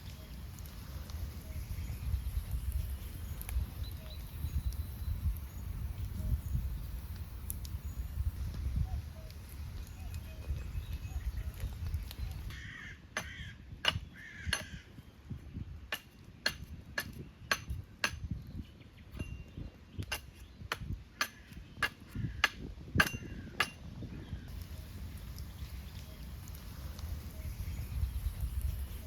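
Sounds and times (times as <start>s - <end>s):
crow cawing: 12.5s - 13.6s.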